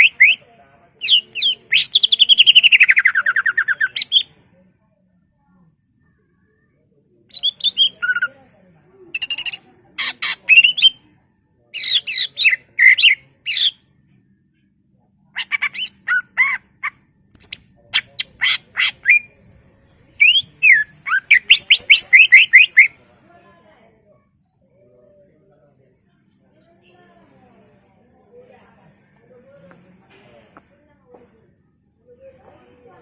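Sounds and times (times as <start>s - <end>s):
bird singing whistled phrases: 7.3s - 8.3s, 10.5s - 11.0s, 20.2s - 23.0s.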